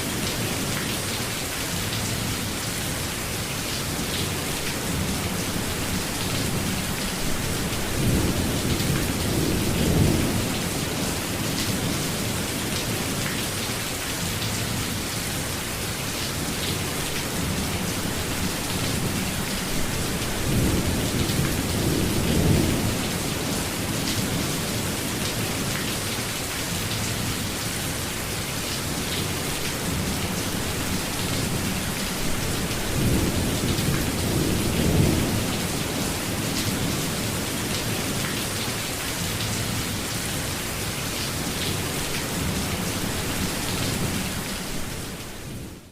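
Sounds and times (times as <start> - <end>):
steady rainfall hissing: 0.0 - 45.9
low rumbles of thunder: 17.3 - 25.2, 29.8 - 38.3.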